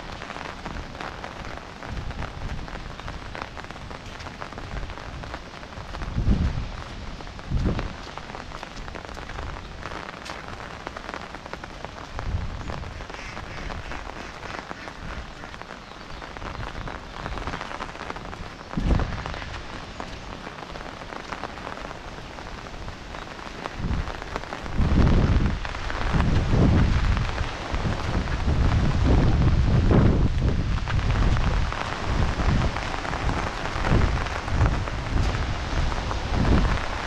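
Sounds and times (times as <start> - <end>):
steady rain falling: 0.0 - 37.0
low rumbles: 1.7 - 10.9.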